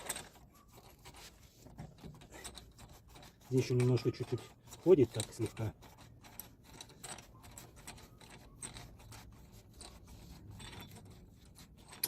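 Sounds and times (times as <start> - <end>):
metal parts clicking and scraping: 0.0 - 12.0.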